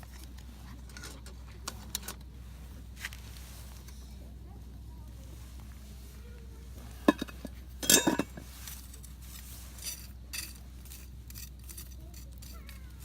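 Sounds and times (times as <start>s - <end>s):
metal utensils clinking on cookware: 7.0s - 9.1s.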